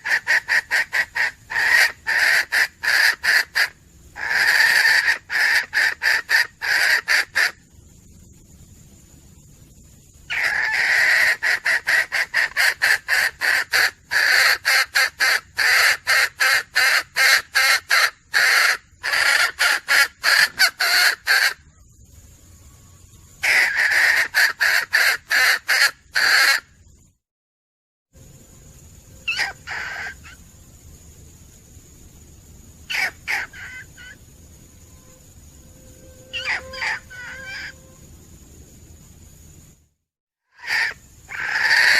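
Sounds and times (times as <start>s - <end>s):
hen cackling: 0.0s - 7.6s, 10.3s - 21.7s, 23.4s - 26.7s, 29.2s - 30.4s, 32.9s - 34.2s, 36.2s - 37.8s, 40.5s - 41.9s.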